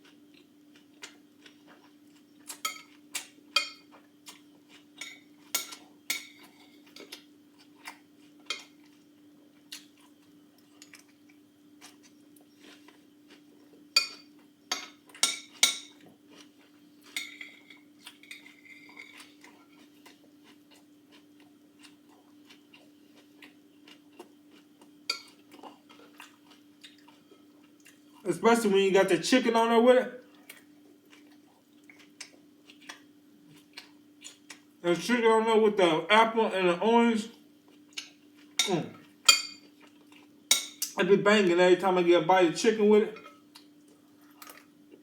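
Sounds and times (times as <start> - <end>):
fork clinking on a dish: 38.6 - 39.7.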